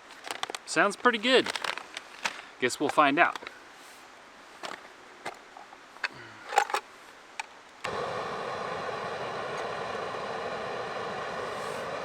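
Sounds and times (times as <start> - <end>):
gas stove burner hissing: 7.8 - 12.0.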